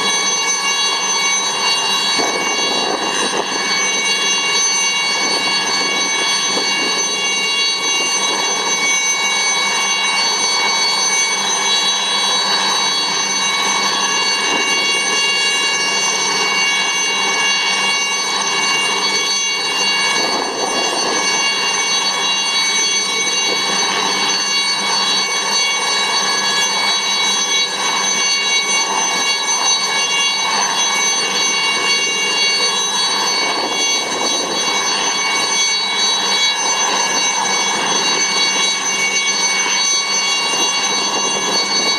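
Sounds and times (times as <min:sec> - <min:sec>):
helicopter turbine whine: 0:00.0 - 0:41.9.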